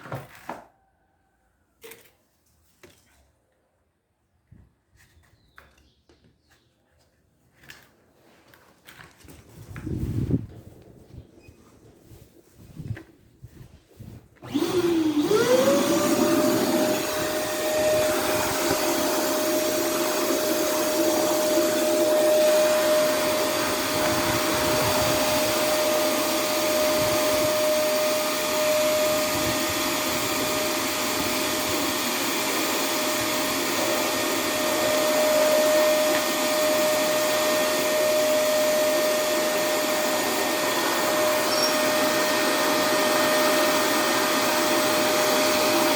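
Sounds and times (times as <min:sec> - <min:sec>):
vacuum cleaner whining: 0:12.7 - 0:45.9.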